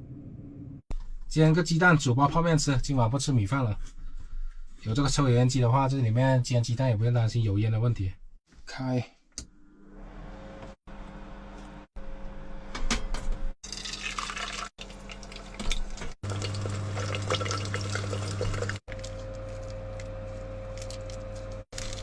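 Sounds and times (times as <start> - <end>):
water bubbling in pot: 13.6 - 18.8
water pouring into pot: 13.6 - 18.8.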